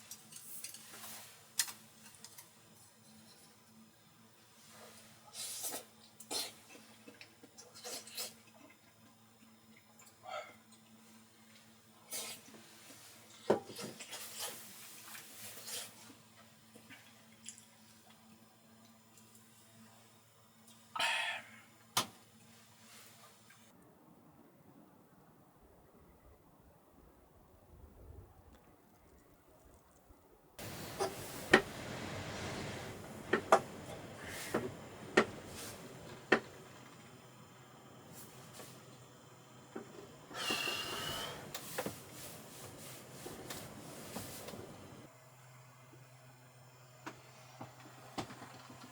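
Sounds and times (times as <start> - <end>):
faint steady hum: 0.0 - 48.9
even rushing noise: 30.6 - 36.8
rustling and handling: 39.8 - 45.1.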